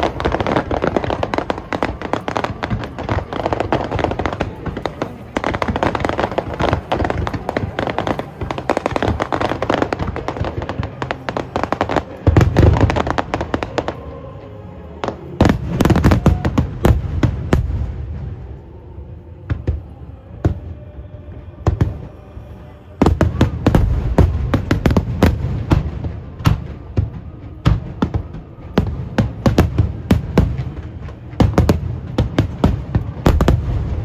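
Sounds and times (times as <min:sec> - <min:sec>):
fireworks popping and crackling: 0:00.0 - 0:14.0, 0:23.0 - 0:34.0
heavy firework booms: 0:23.0 - 0:34.0.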